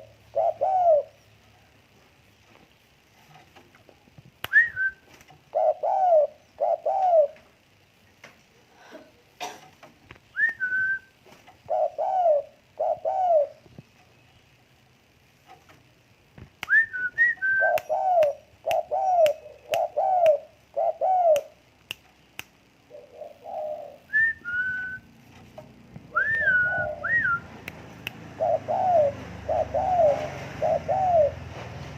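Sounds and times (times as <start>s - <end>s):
dove cooing: 0.0s - 1.2s, 5.5s - 7.4s, 11.6s - 13.7s, 17.4s - 21.6s, 22.9s - 25.0s, 26.1s - 27.6s, 28.2s - 31.6s
sharp clicks: 21.3s - 22.8s, 27.6s - 28.3s.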